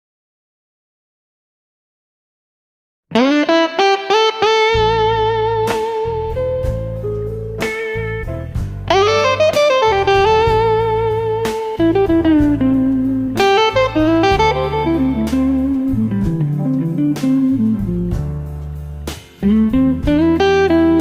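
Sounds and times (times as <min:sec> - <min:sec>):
electric lead guitar: 0:03.1 - 0:21.0
drums: 0:04.7 - 0:21.0
bass line: 0:04.8 - 0:21.0.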